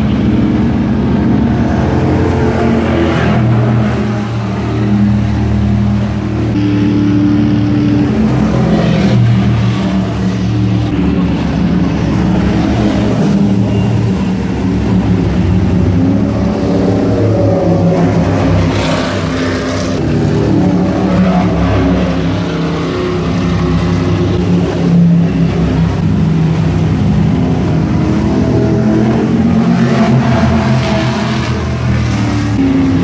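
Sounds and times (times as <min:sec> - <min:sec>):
powerboat engines rumbling: 0:00.0 - 0:33.0.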